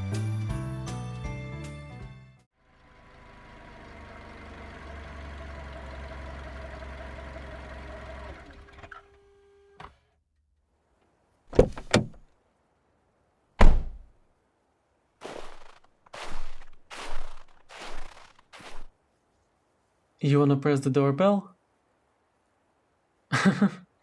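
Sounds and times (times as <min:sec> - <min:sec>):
car doors shutting: 0:11.5 - 0:12.2, 0:13.6 - 0:14.1
car engine rumbling: 0:11.5 - 0:12.2, 0:13.6 - 0:14.1.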